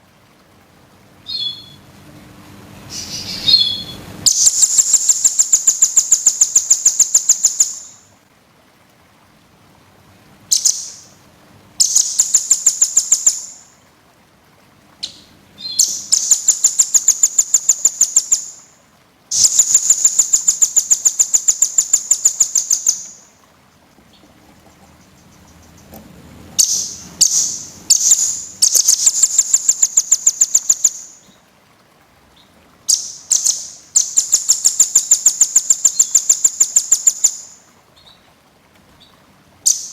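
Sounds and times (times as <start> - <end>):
songbird fast trill: 1.2 - 1.8, 2.9 - 8.1, 10.5 - 11.1, 11.8 - 13.7, 15.0 - 18.7, 19.3 - 23.4, 26.6 - 31.3, 32.9 - 38.2, 39.6 - 39.9.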